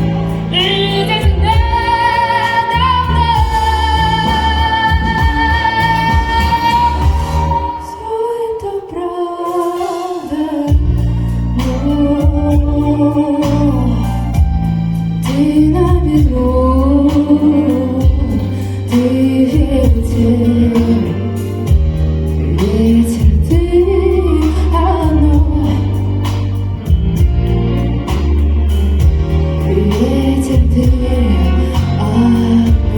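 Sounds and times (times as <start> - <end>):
bass line and beat: 0.0 - 7.7, 19.3 - 32.9
woman singing pop song: 0.0 - 32.9.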